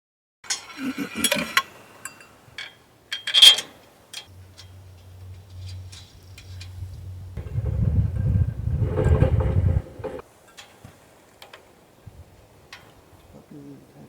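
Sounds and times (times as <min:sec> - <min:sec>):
metal parts and tools clanking: 0:00.5 - 0:10.2
low steady hum: 0:04.3 - 0:10.2.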